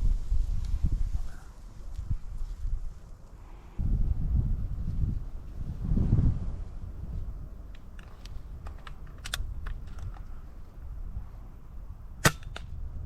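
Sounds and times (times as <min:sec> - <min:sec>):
low wind rumble on microphone: 0:00.0 - 0:13.0
air rifle shot: 0:12.2 - 0:12.8.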